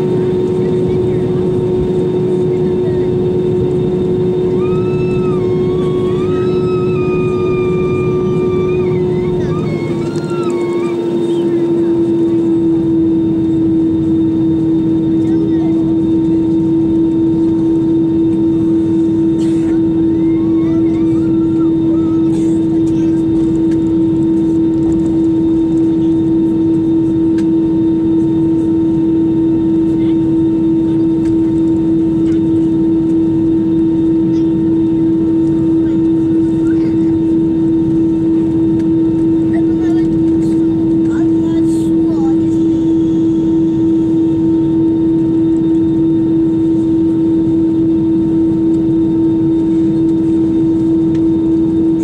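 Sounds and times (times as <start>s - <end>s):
aircraft cabin engine hum: 0.0s - 52.0s
wavering engine whine: 0.0s - 52.0s.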